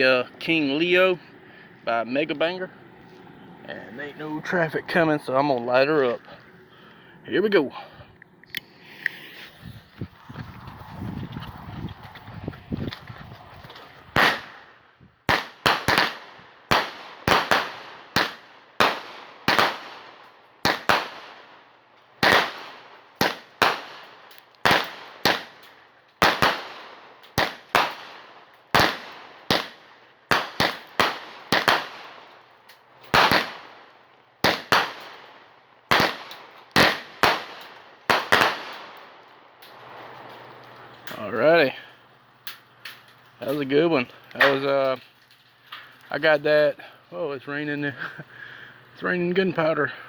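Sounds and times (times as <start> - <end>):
fireworks shots bursting: 14.1 - 40.2.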